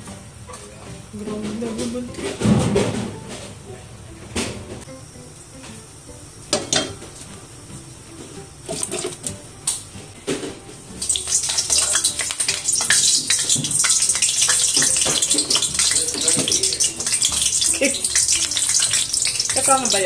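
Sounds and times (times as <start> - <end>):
eggplant sizzling in hot oil: 4.8 - 20.0
tongs and pan knocking: 6.5 - 7.0, 11.1 - 20.0.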